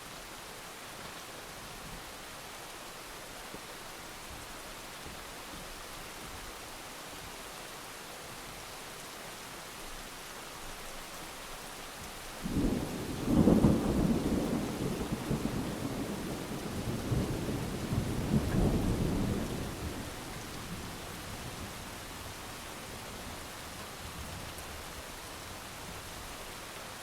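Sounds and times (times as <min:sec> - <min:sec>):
heavy rain falling: 0:00.0 - 0:27.0
thunderclap rumbling: 0:12.4 - 0:21.6.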